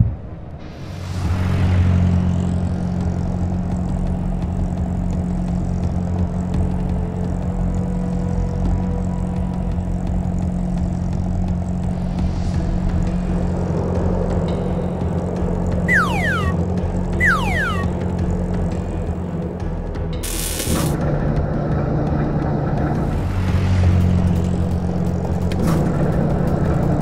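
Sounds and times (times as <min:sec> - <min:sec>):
low cartoon engine drone: 0:15.9 - 0:18.3.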